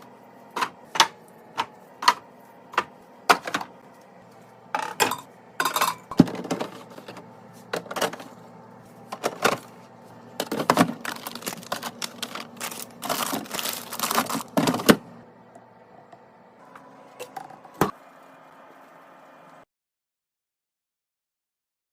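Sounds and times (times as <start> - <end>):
packaging rustling: 10.4 - 15.0.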